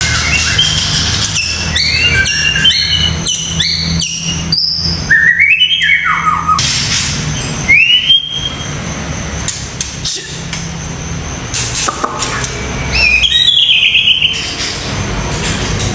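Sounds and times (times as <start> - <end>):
bird singing whistled notes: 0.0 - 6.6, 7.7 - 8.8, 12.3 - 14.4.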